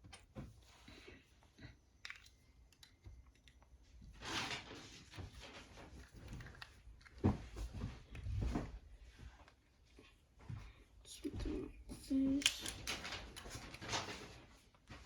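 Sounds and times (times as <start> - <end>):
plastic parts clicking and knocking: 12.4 - 14.1.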